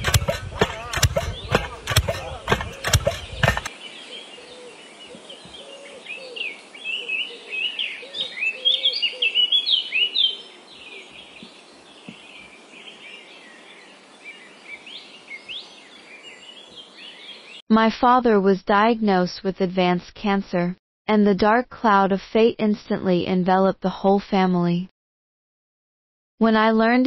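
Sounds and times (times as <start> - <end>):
tamping rammer pounding dirt: 0.0 - 3.7
songbirds chirping: 0.0 - 17.6.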